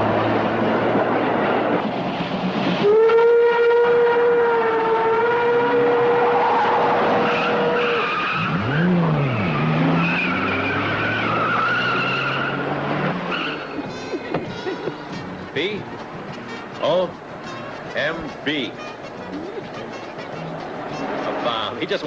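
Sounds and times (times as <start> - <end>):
car engine rumble: 0.0 - 2.9, 5.3 - 22.0
tyres squealing: 5.5 - 22.0.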